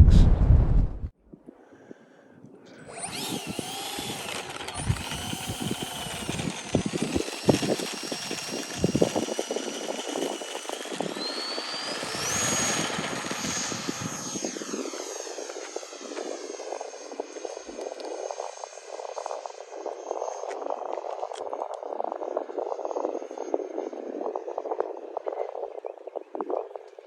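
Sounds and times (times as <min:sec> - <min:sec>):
wind buffeting microphone: 0:00.0 - 0:02.0, 0:02.8 - 0:27.0
electric fan motor whining: 0:02.7 - 0:25.8.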